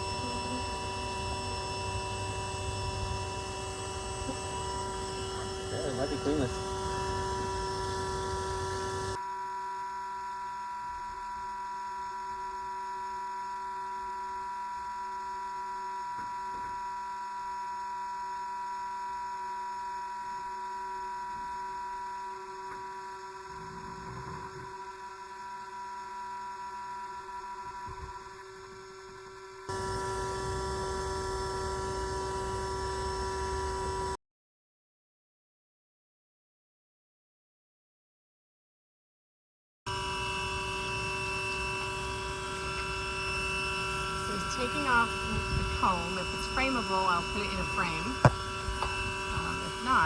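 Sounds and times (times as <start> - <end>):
vacuum motor whine: 0.0 - 34.2, 39.9 - 50.0.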